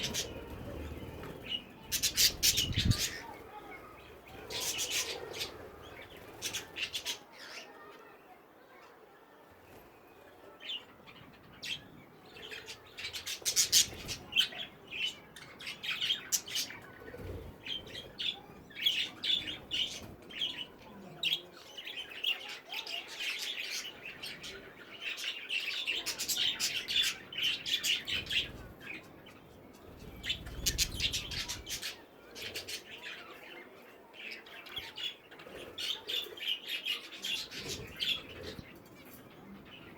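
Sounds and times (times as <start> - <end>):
budgerigars chattering and chirping: 0.0 - 3.3, 30.2 - 33.6.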